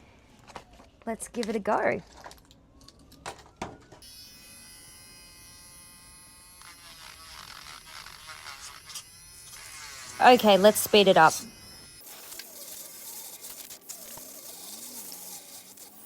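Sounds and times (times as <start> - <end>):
rotary tool electric whine: 4.0 - 16.0.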